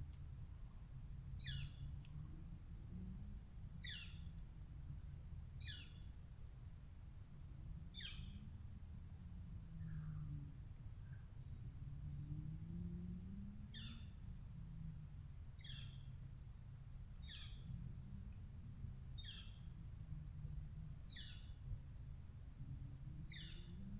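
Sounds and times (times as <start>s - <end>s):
low steady rumble: 0.0s - 23.9s
faint high bird chirps: 1.4s - 2.0s, 5.6s - 6.1s, 6.8s - 8.4s, 13.3s - 14.2s, 15.4s - 16.3s, 17.2s - 18.0s, 19.2s - 21.6s, 23.2s - 23.9s.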